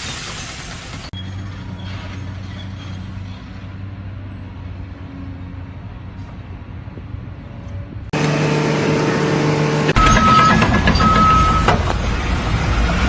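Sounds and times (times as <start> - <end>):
heavy vehicle engine humming: 8.1 - 11.6
steady droning tone: 8.2 - 10.0.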